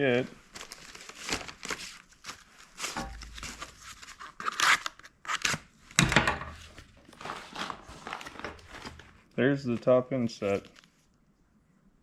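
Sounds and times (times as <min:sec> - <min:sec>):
plastic packaging being torn: 0:00.5 - 0:05.7, 0:06.6 - 0:09.2.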